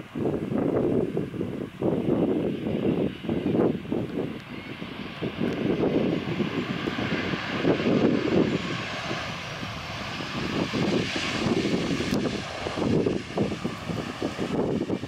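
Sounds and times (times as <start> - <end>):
gusty low noise: 0.0 - 15.0
jet engines rumble and whine: 0.0 - 15.0.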